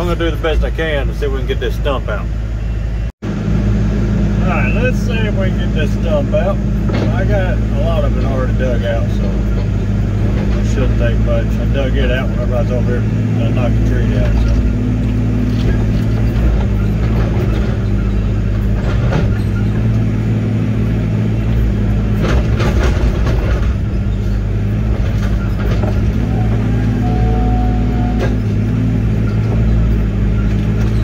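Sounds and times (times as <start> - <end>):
excavator diesel engine running: 0.0 - 31.0
clanks and knocks: 6.8 - 7.4, 8.0 - 11.0, 15.5 - 20.1, 21.5 - 27.2, 28.1 - 31.0.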